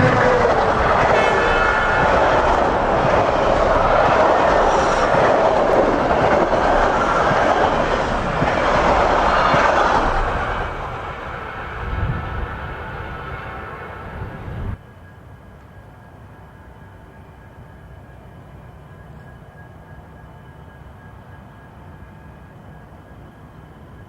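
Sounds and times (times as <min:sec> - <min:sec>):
train wheels clattering on rails: 0:00.0 - 0:14.4.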